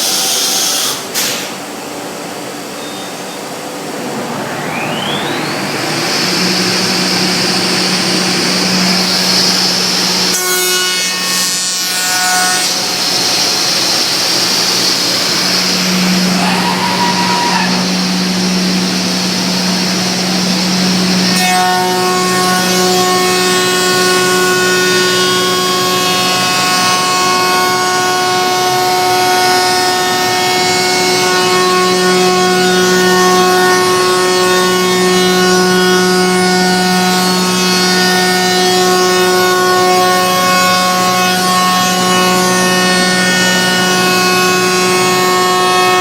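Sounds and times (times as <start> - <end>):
cnc router humming: 0.0 - 46.0
high spindle whine: 0.0 - 46.0
machining and extraction noise: 2.5 - 10.4.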